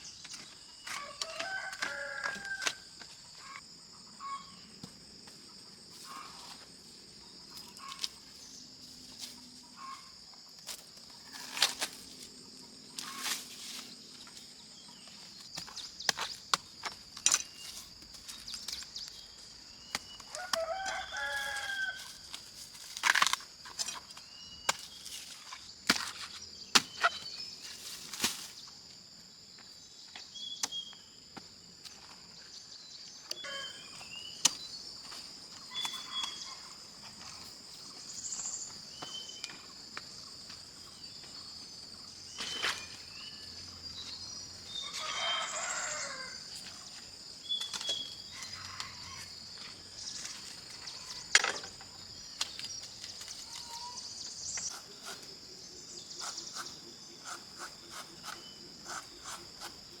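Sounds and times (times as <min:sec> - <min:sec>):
insects chirping: 0:00.0 - 1:00.0
bird calls: 0:33.2 - 0:39.8, 0:52.4 - 0:59.9.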